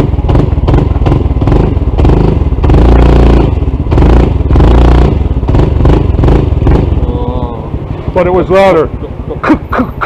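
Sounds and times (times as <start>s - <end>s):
metallic knocking inside engine: 0.0s - 7.0s
scooter engine revving: 0.0s - 10.0s.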